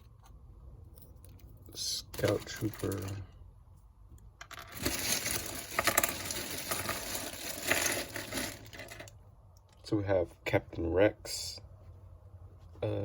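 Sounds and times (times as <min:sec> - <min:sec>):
plastic pieces clattering: 0:02.0 - 0:03.3, 0:04.4 - 0:09.2.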